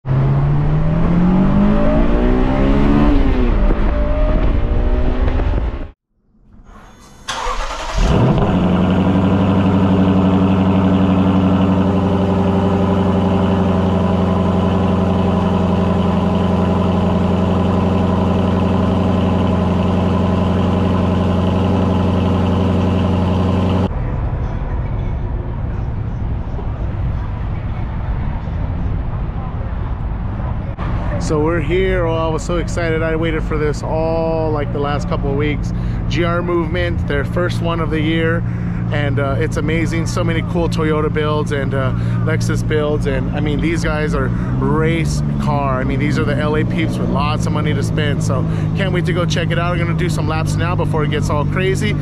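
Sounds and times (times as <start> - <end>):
car engine revving: 0.0 - 6.0, 7.0 - 23.9, 30.8 - 52.0
engine starting and idling: 6.5 - 23.9.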